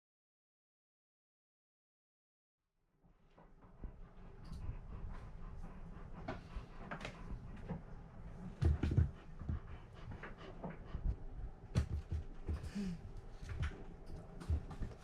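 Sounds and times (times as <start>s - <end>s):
dog panting: 3.4s - 15.0s.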